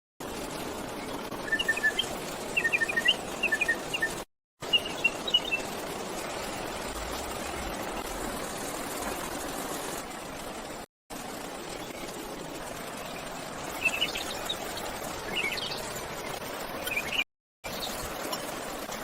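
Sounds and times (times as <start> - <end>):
bird chirps: 1.4 - 5.6, 16.8 - 17.2
steady rushing noise: 4.9 - 17.1.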